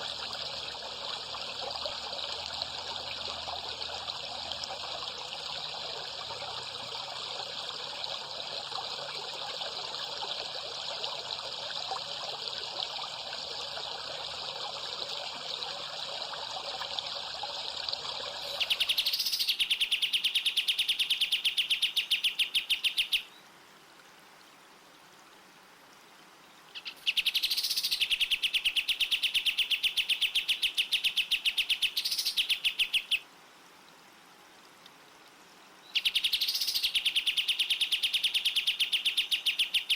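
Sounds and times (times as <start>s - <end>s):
running water rushing: 0.0s - 39.9s
bird trilling: 18.4s - 23.3s.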